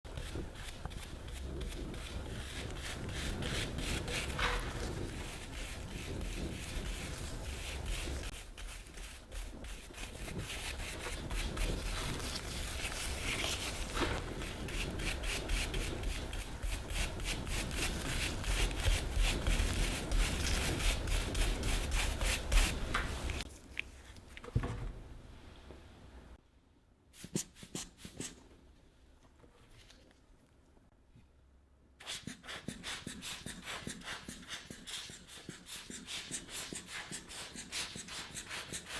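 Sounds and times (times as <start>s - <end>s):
scrubbing strokes on toy: 0.1s - 23.5s, 32.0s - 38.9s.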